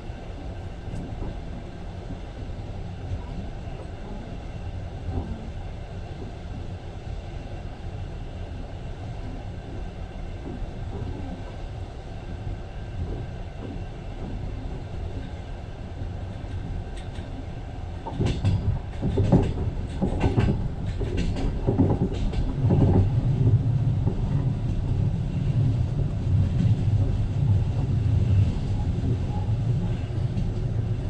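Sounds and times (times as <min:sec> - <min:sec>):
train rumbling on track: 0:00.0 - 0:31.0.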